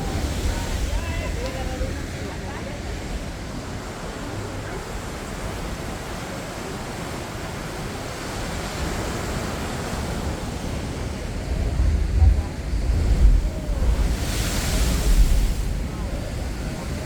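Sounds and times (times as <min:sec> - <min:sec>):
wind on microphone: 0:10.0 - 0:17.0.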